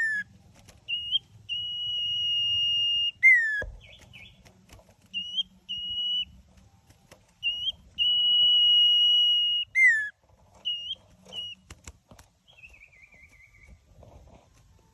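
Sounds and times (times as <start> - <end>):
bird singing whistled notes: 0.0 - 4.4, 5.1 - 6.5, 7.3 - 11.7, 12.4 - 13.8.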